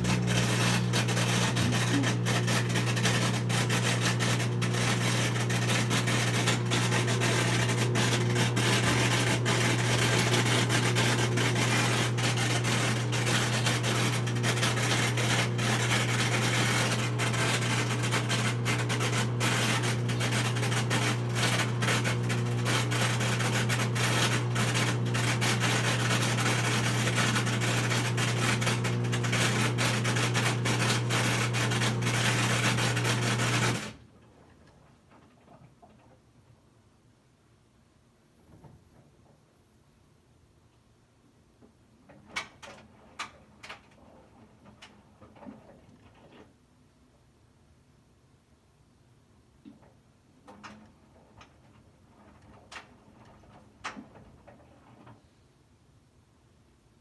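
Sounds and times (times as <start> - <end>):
rasping rubbing noise: 0.0 - 13.8
washing machine spinning: 0.0 - 34.0.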